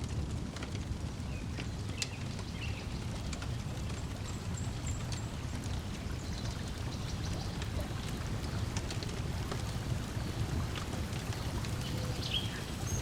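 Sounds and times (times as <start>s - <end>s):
wood fire crackling: 0.0s - 13.0s
lake water: 2.2s - 13.0s
bird chirp: 11.3s - 13.0s.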